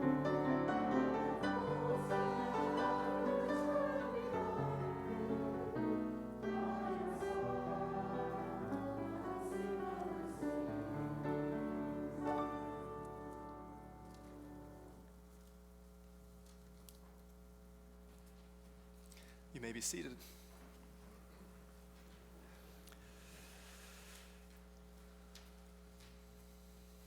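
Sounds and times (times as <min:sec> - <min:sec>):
voices singing a hymn: 0:00.0 - 0:14.9
piano accompaniment: 0:00.0 - 0:15.0.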